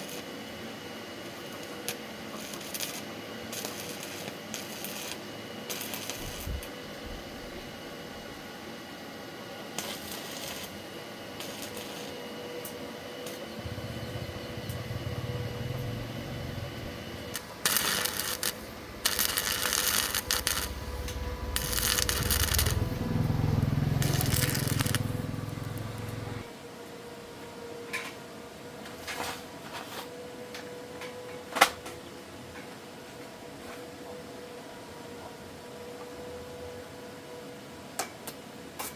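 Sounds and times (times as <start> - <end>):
low steady hum: 13.5 - 26.5.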